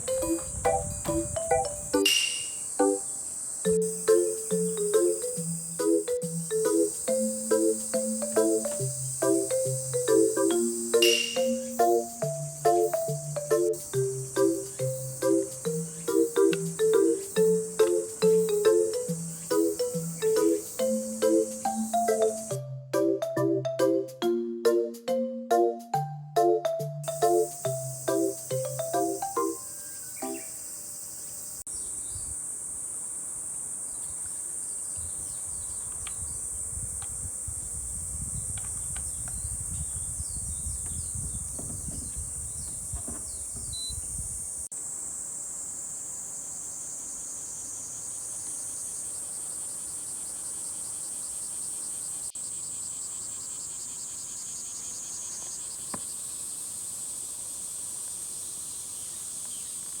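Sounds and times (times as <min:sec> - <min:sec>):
wind rumble on microphone: 0:00.0 - 0:02.0, 0:35.0 - 0:44.7
insects trilling: 0:00.0 - 0:22.6, 0:27.0 - 1:00.0
short insect chirps: 0:00.0 - 0:22.6, 0:27.1 - 1:00.0.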